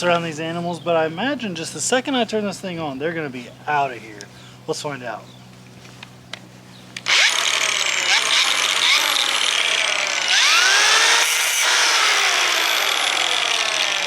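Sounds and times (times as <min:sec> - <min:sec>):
power tool cutting fence panel: 0:07.0 - 0:14.0.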